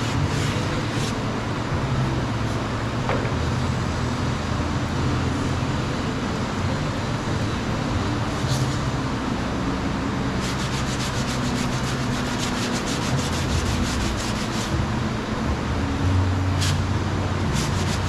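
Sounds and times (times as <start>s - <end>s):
sandpaper rubbing: 0.0s - 1.2s, 10.4s - 14.8s, 17.5s - 18.0s
low steady hum: 0.0s - 18.0s.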